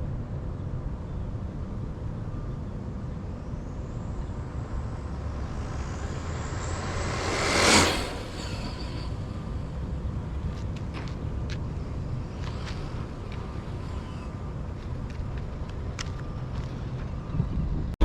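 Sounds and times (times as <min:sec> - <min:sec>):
wind rumble: 0:00.0 - 0:18.0
vehicle passing close by: 0:03.2 - 0:10.2.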